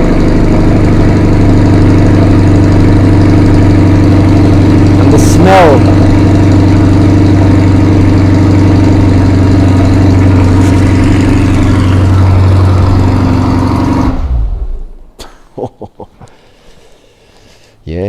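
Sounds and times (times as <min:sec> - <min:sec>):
car engine idling: 0:00.0 - 0:15.2.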